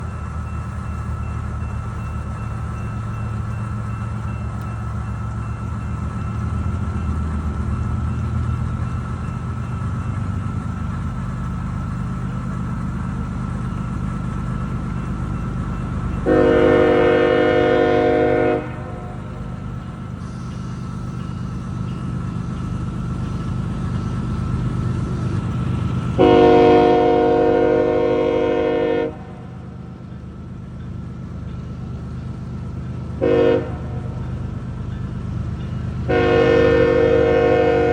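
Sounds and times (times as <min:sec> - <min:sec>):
diesel locomotive rumble: 0:00.0 - 0:37.9
train air horn blasts: 0:16.2 - 0:19.4, 0:26.2 - 0:29.7, 0:33.2 - 0:34.2, 0:36.1 - 0:37.9.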